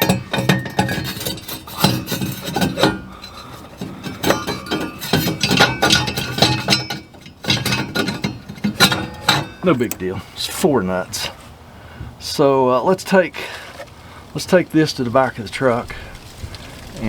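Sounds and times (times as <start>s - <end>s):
metal parts clicking and scraping: 0.0s - 10.1s.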